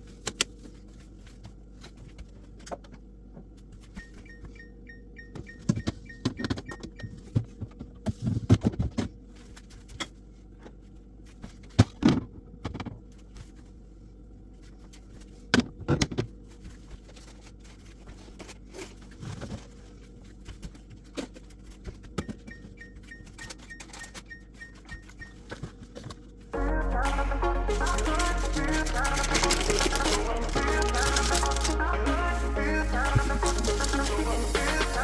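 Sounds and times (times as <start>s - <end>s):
rapid high beeping: 26.6s - 35.0s.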